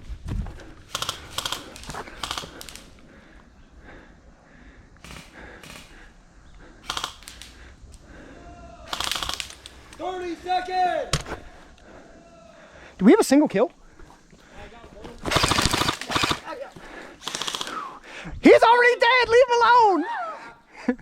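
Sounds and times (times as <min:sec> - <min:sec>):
airsoft gun bursts: 0:00.9 - 0:03.0, 0:05.0 - 0:06.0, 0:06.8 - 0:07.6, 0:08.9 - 0:10.0, 0:15.2 - 0:18.0.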